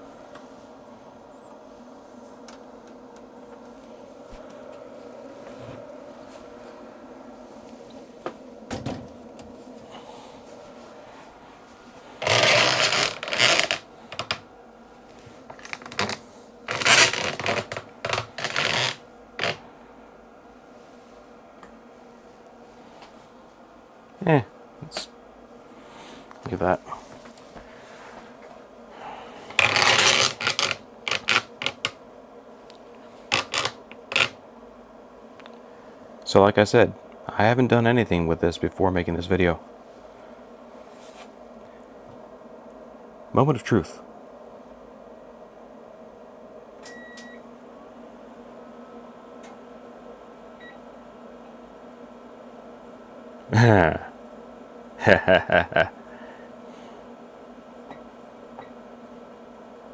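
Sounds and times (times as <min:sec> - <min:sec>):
loud scraping rustle: 0:12.0 - 0:14.4, 0:15.3 - 0:19.6, 0:29.4 - 0:32.0, 0:33.2 - 0:34.4.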